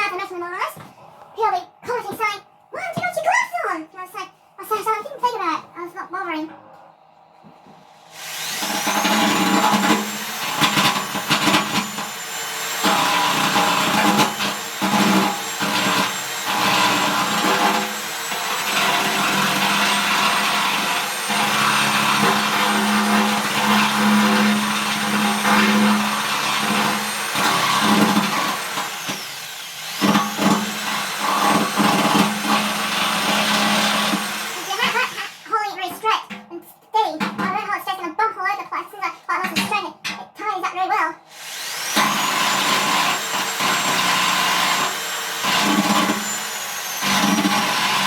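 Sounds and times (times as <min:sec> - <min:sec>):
electric drill whining: 0:07.7 - 0:35.5, 0:41.3 - 0:48.0
drill bit grinding sheet steel: 0:08.1 - 0:35.5, 0:41.3 - 0:48.0.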